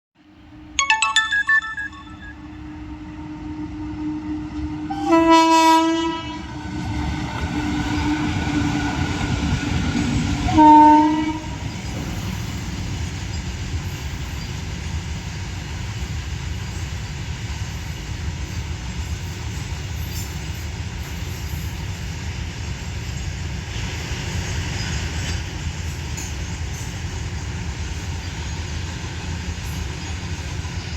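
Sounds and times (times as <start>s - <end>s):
train passing rumble: 3.1s - 30.9s
locomotive horn blasts: 4.9s - 6.5s, 10.5s - 11.5s.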